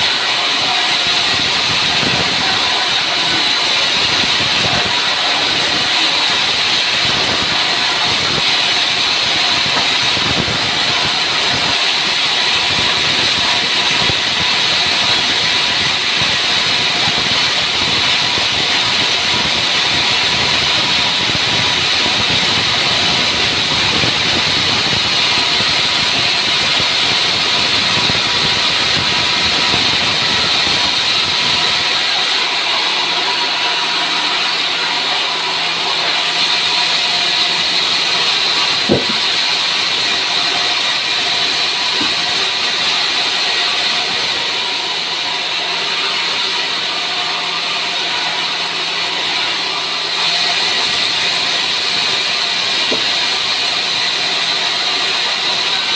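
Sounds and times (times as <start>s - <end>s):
saw whine cutting wood: 0.0s - 55.9s
sharp knock: 38.8s - 39.4s.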